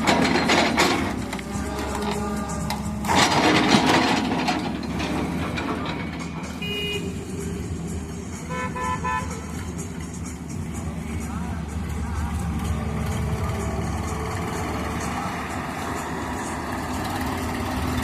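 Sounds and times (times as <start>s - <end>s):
loud grinding crash: 0.0s - 6.5s
diesel excavator engine running: 0.0s - 18.0s.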